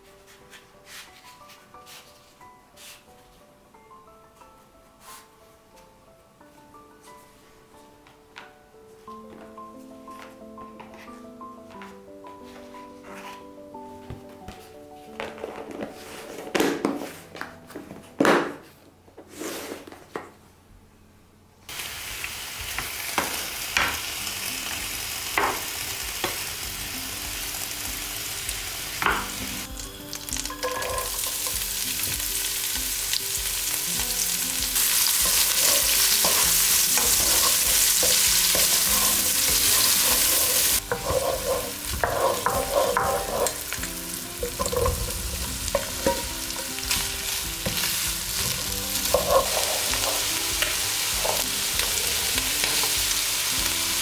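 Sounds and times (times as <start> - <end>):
food sizzling in a pan: 21.7 - 54.0
utensils clinking against pan: 29.0 - 54.0.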